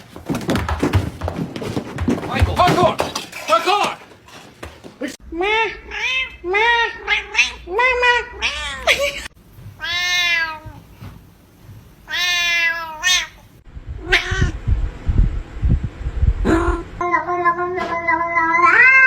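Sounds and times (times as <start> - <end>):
cat meowing: 5.4 - 10.8, 12.1 - 13.4, 14.0 - 14.6, 17.0 - 19.0
low thumps: 13.7 - 17.0.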